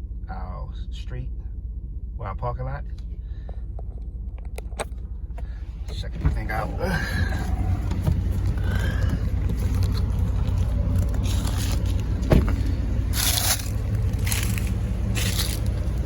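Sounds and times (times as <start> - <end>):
pickup truck engine idling: 3.0 - 16.0
thump: 12.2 - 12.7.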